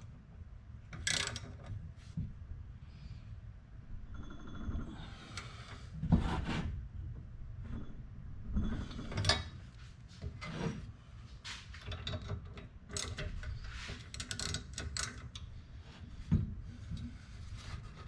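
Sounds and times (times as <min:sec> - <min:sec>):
tools and metal parts handled: 0:00.9 - 0:01.8, 0:11.5 - 0:15.4.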